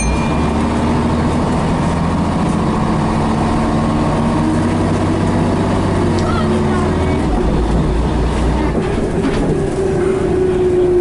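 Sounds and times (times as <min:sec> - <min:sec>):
bus diesel engine idling: 0:00.0 - 0:11.0.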